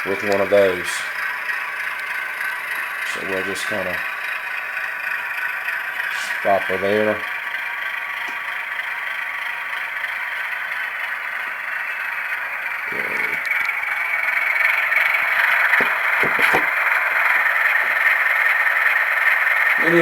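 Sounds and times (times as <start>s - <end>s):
diesel engine idling through small speaker: 0.0s - 20.0s.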